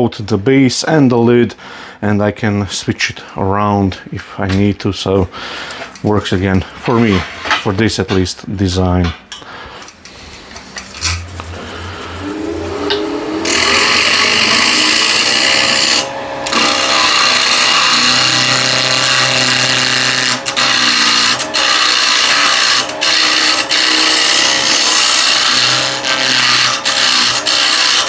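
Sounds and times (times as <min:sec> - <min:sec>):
lathe humming: 0:10.0 - 0:28.0
turning tool cutting wood: 0:10.0 - 0:28.0.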